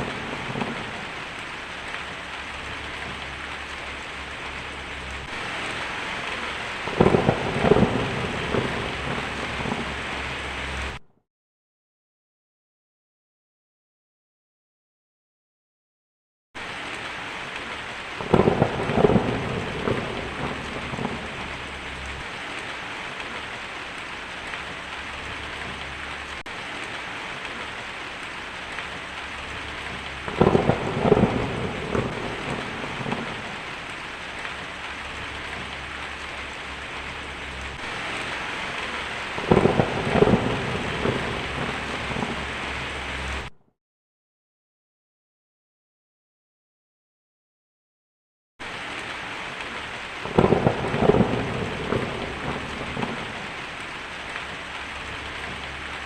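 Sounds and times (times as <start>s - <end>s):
heavy rain: 0.0s - 11.0s, 16.6s - 43.6s, 48.6s - 56.0s
thunder cracking and rumbling: 0.0s - 11.0s, 17.6s - 43.5s, 50.2s - 56.0s.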